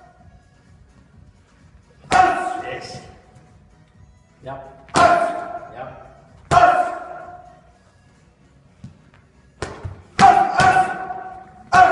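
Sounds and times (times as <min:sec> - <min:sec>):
hard punches landing: 0:04.9 - 0:05.6, 0:06.5 - 0:07.1, 0:09.6 - 0:11.9.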